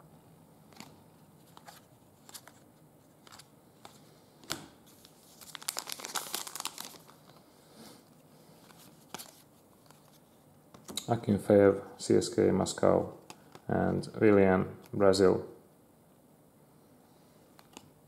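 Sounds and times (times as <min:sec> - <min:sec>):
card packaging crinkling and tearing: 0:00.8 - 0:04.0, 0:04.9 - 0:07.4, 0:08.6 - 0:10.2.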